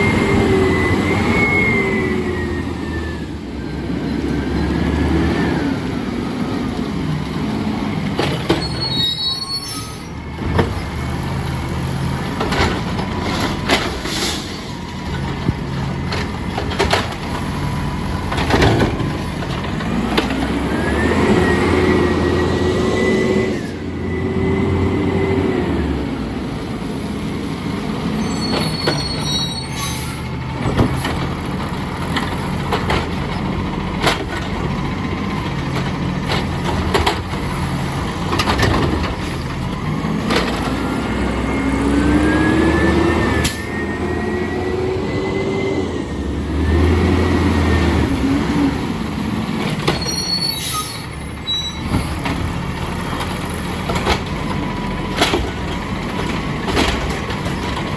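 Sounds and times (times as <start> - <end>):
garbage truck engine revving: 0.0 - 57.9
hydraulics whining: 0.0 - 57.9
bins and metal banging: 10.4 - 20.6, 28.2 - 41.4, 48.8 - 57.9.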